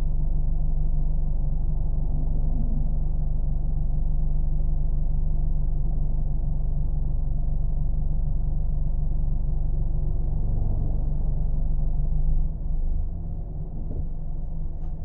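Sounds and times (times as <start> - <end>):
car engine and cabin drone: 0.1 - 15.0.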